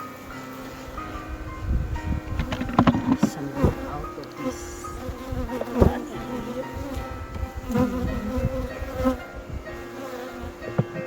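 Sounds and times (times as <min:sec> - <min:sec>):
honeybees buzzing: 0:00.0 - 0:11.0
knocks from handling hive: 0:02.2 - 0:09.1, 0:10.6 - 0:11.0.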